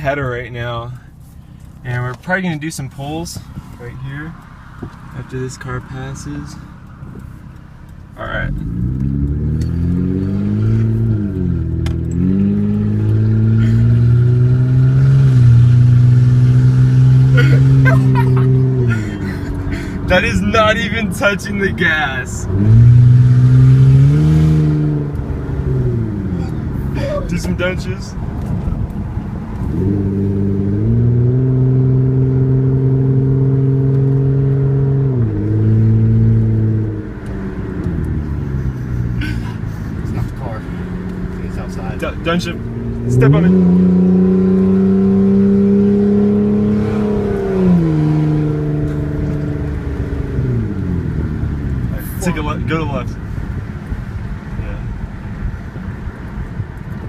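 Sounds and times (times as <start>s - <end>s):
engine revving loudly: 8.5s - 21.0s, 22.0s - 27.4s, 29.7s - 52.0s.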